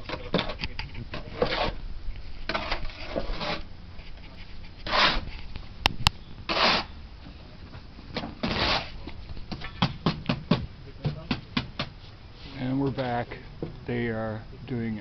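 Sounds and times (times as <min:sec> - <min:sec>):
trowel scraping mortar on brick: 0:01.2 - 0:01.8, 0:02.5 - 0:03.7, 0:04.6 - 0:05.4, 0:06.5 - 0:06.9, 0:08.4 - 0:09.0.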